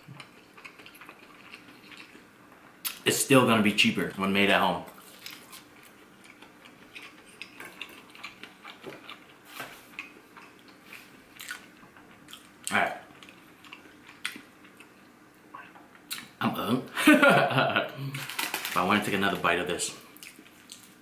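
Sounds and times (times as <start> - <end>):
chewing crunchy food: 0.0 - 3.0, 4.9 - 16.3.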